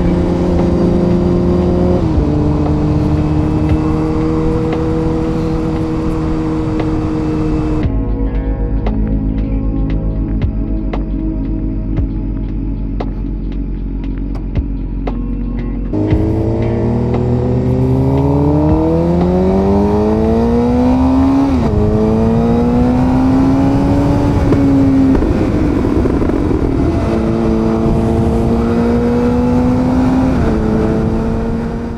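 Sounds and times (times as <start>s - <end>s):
motorcycle engine accelerating: 0.0s - 7.9s, 15.9s - 31.9s.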